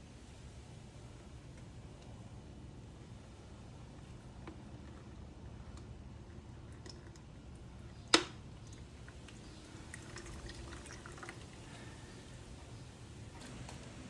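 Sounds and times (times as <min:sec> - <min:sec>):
oil trickling into container: 0:06.2 - 0:12.9.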